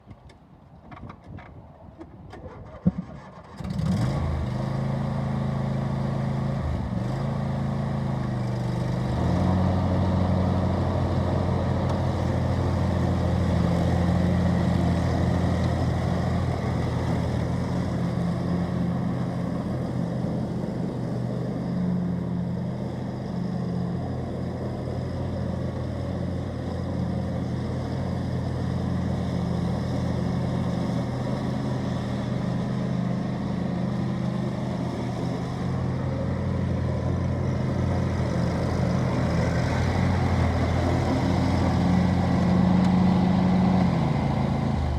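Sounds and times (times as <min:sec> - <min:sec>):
lawn tractor engine running: 0:02.1 - 0:44.9.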